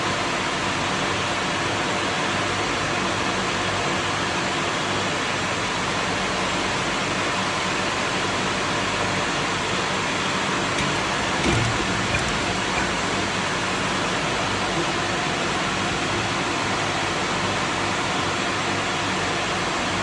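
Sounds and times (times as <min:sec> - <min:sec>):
water pump running: 0:10.6 - 0:14.1.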